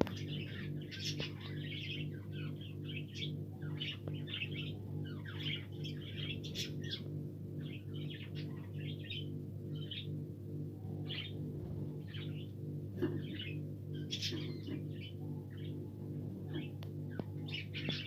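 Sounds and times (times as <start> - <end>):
low electrical hum: 0.0 - 18.0
budgerigars chattering: 12.1 - 15.7.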